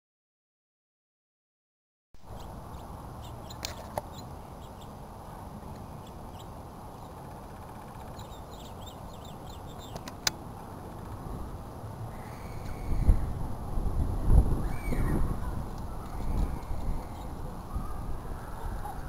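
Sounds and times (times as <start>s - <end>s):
small birds chirping faintly: 2.2s - 13.4s, 14.6s - 19.0s
sharp clicks: 9.8s - 10.4s.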